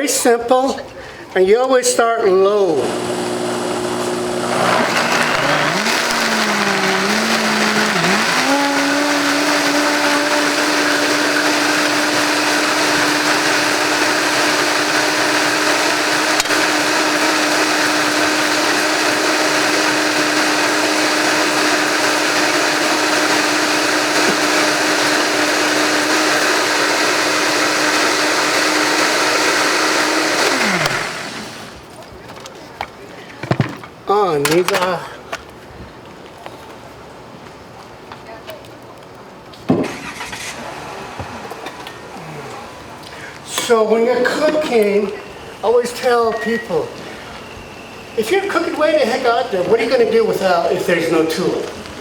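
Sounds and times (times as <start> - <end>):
electric blender motor: 2.6 - 31.8, 40.0 - 43.0.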